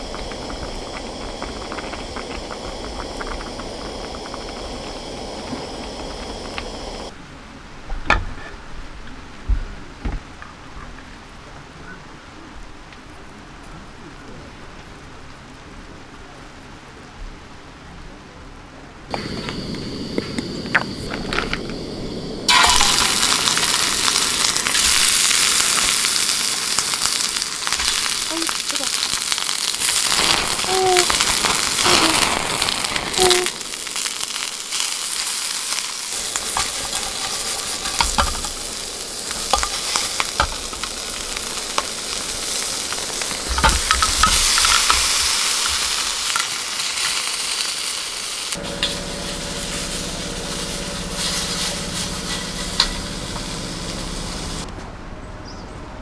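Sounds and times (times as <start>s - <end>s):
steady low hum: 0.0s - 7.1s, 19.1s - 22.5s, 48.6s - 54.7s
food sizzling in a pan: 0.0s - 7.2s, 19.1s - 54.7s.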